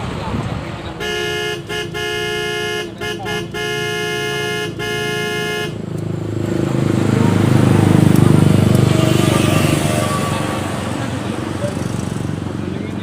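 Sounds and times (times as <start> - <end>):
passing vehicle engine rumble: 0.0 - 13.0
vehicle horn blast: 1.0 - 5.8.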